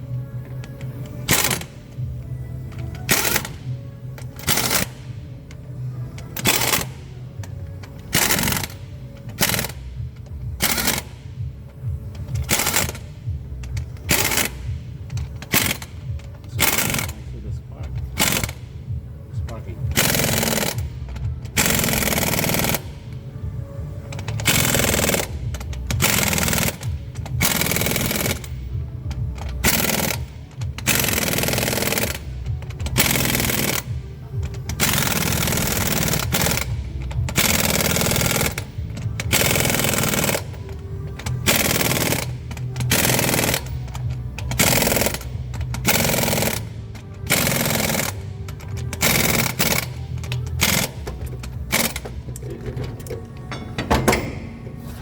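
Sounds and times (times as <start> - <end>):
impact wrench bursts: 0.5 - 54.8.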